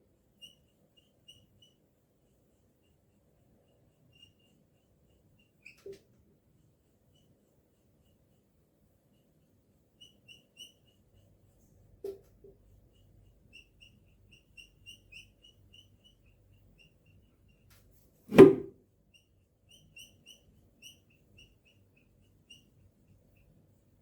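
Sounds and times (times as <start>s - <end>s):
marker squeaking: 0.3s - 3.0s, 3.6s - 6.1s, 10.0s - 17.3s
loud knock: 18.3s - 18.7s.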